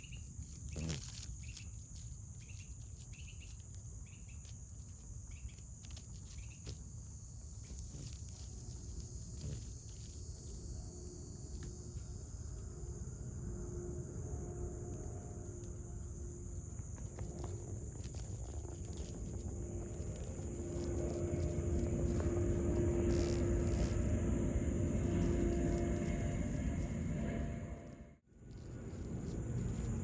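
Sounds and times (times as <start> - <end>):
faint steady hum: 0.0 - 30.0
insect chorus drone: 0.0 - 30.0
low rumble: 10.6 - 30.0.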